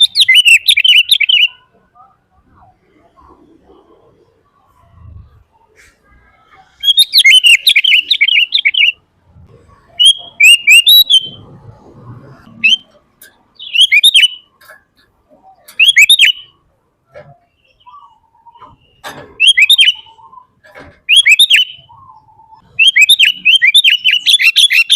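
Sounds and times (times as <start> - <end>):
bird singing whistled notes: 0.0 - 1.7, 6.8 - 9.0, 10.0 - 11.4, 12.6 - 12.9, 13.6 - 14.5, 15.8 - 16.6, 17.6 - 24.9.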